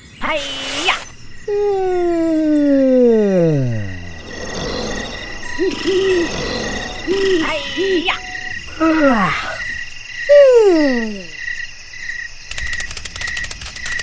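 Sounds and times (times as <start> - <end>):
crickets chirring: 0.0 - 14.0
falling whistle-like glides: 0.5 - 8.7
short low calls: 1.4 - 9.6, 10.3 - 11.4
quick run of clicks: 12.5 - 14.0.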